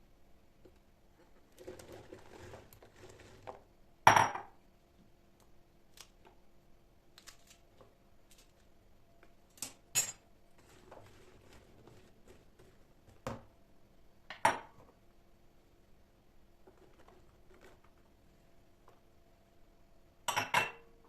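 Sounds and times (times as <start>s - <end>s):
faint steady hum: 0.0s - 21.0s
dishes and utensils clanking: 9.7s - 10.3s, 20.3s - 20.9s.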